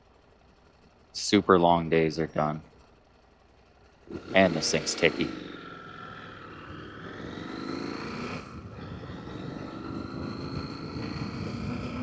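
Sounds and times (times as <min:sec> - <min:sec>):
motorcycle engine running: 0:02.7 - 0:12.0.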